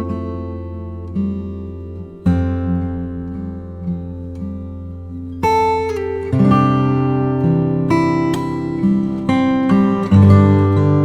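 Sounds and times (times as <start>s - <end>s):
acoustic guitar plucked notes: 0.0s - 11.0s.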